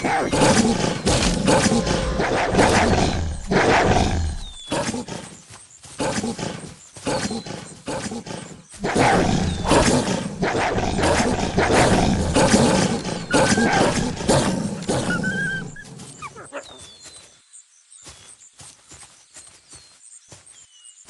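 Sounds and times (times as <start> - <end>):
wolves growling and snarling: 0.0 - 5.1, 6.0 - 16.5.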